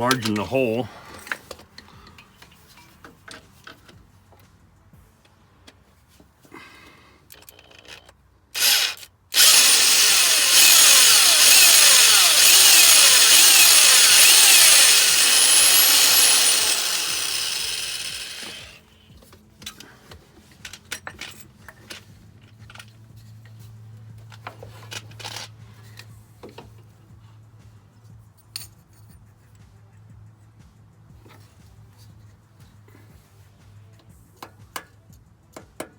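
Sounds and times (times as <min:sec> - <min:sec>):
power drill boring into metal: 0:08.6 - 0:18.8.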